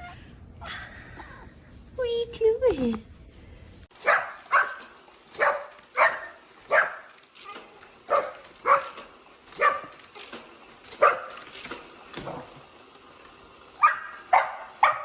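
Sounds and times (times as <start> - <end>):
dog barking: 4.0 - 9.9, 11.0 - 11.4, 13.8 - 15.0.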